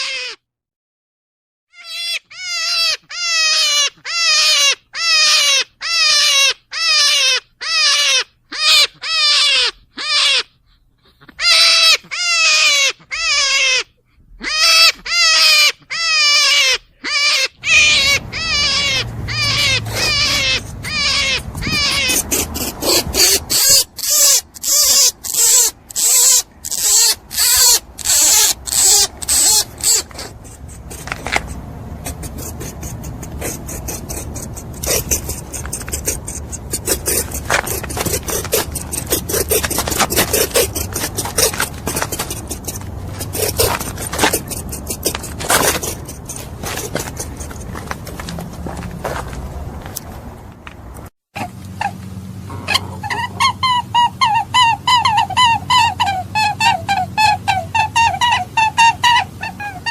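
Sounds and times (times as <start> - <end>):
animal calls sliding downward: 14.4 - 49.3.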